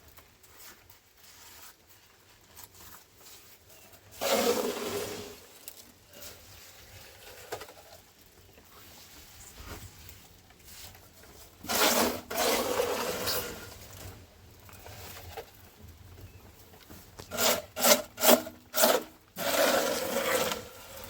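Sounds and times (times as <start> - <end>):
faint rustling: 0.0 - 17.4
rasp scraping wood: 4.2 - 5.4, 11.6 - 13.8, 17.2 - 21.0.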